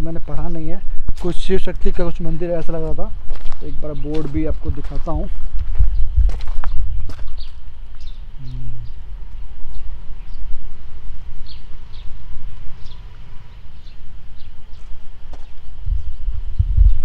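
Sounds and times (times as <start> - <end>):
low microphone rumble: 2.8 - 17.0
small bird chirping: 5.8 - 17.0.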